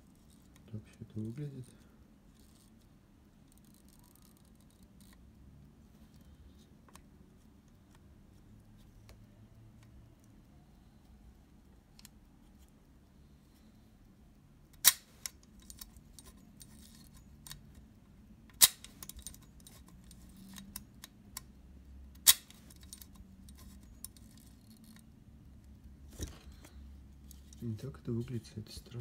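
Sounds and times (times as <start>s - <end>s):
light metallic clicking and rattling: 14.7s - 21.5s.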